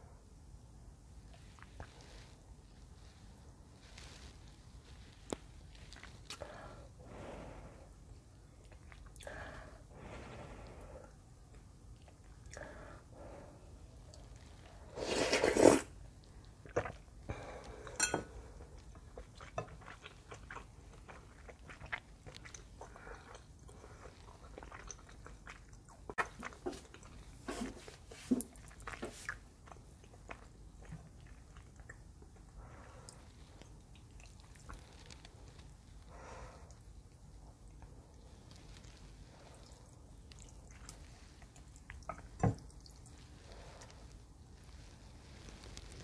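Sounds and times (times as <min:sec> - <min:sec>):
wet chewing and smacking: 0:08.5 - 0:09.4, 0:16.0 - 0:44.5
noodle slurp: 0:14.8 - 0:16.0.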